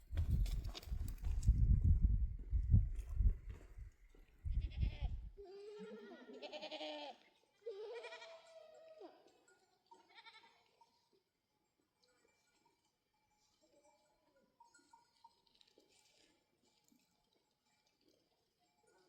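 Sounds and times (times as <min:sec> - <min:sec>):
low rumble on microphone: 0:00.0 - 0:05.4
goat bleating: 0:04.5 - 0:09.3, 0:09.9 - 0:10.8.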